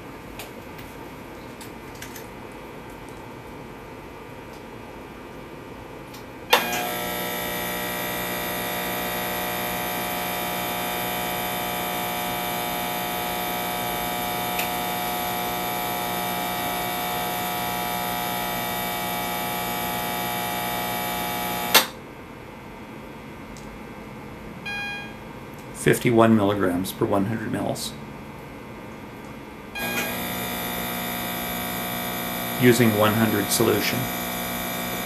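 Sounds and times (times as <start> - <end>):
air pump humming: 6.5 - 21.9, 29.2 - 35.0.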